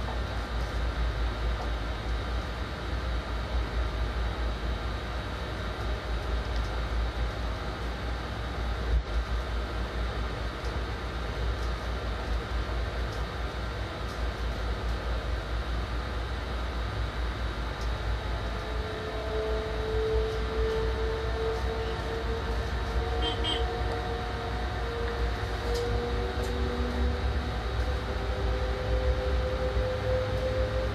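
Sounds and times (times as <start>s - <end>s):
train wheels rumbling on track: 0.0s - 2.6s, 17.5s - 30.9s
steady whine: 0.0s - 30.9s.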